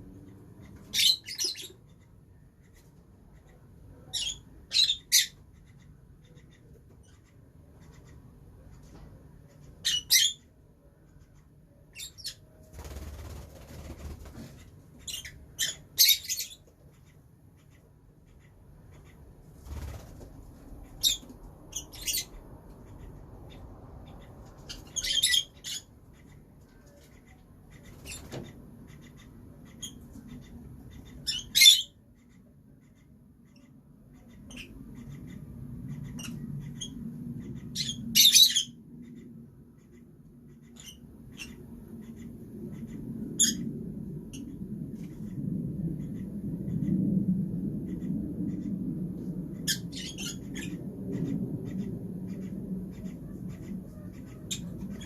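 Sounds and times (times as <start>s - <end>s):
low background noise: 0.0s - 55.0s
lovebirds chirping shrilly: 0.6s - 2.1s, 11.9s - 20.1s, 20.8s - 26.4s, 27.0s - 32.0s, 34.1s - 38.8s, 49.6s - 55.0s
lovebird squawks: 9.7s - 10.5s, 20.8s - 39.2s, 39.8s - 43.7s, 49.6s - 55.0s.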